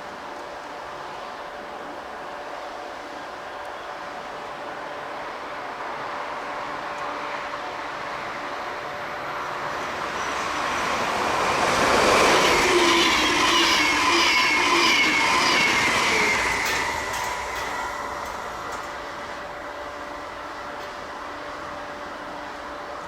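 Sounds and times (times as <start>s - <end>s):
train passing rumble: 0.2s - 23.0s
whining wheel tones: 9.0s - 21.1s.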